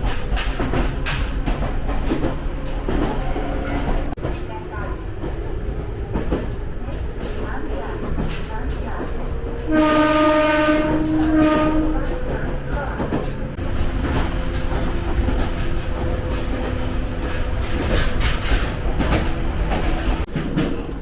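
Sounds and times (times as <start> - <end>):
train rumble: 0.0 - 21.0
wheels clacking over rail joints: 0.0 - 21.0
train horn: 9.6 - 12.5.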